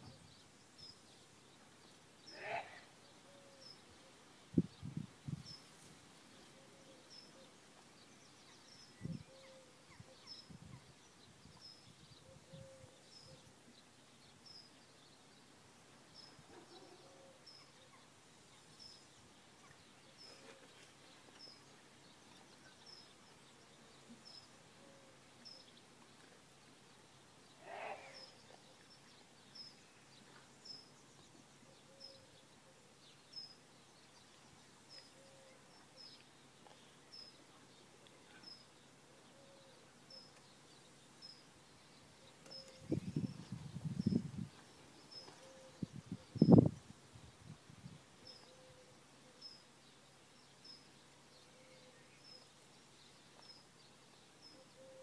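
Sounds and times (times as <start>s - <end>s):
lower bird call: 27.6s - 28.5s.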